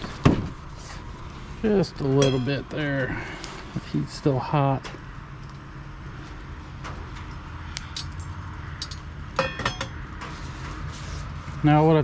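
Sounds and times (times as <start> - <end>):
utensils clinking on a pan: 2.2 - 2.6, 8.8 - 10.0.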